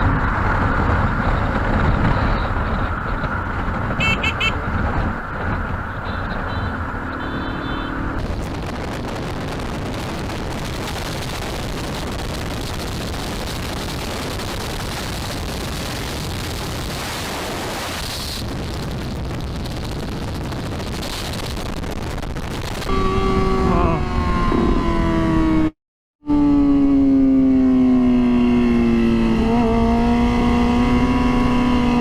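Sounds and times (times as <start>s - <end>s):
wind buffeting microphone: 0.0s - 7.1s, 8.2s - 25.7s
vehicle horn: 4.0s - 4.6s, 5.9s - 8.2s, 22.9s - 24.9s.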